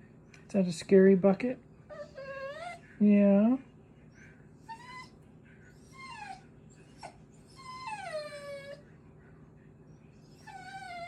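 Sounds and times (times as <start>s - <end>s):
small dog whining: 1.9s - 2.8s, 4.6s - 5.2s, 5.8s - 8.8s, 10.3s - 11.0s.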